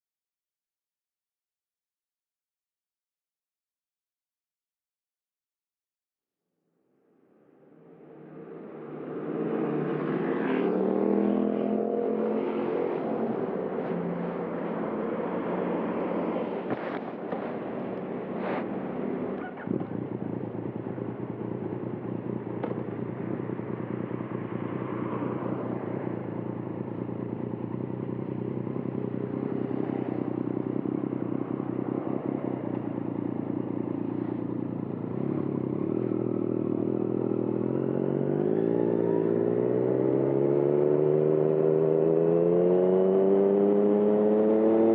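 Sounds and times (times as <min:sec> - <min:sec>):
motorcycle engine revving: 0:07.8 - 0:44.9.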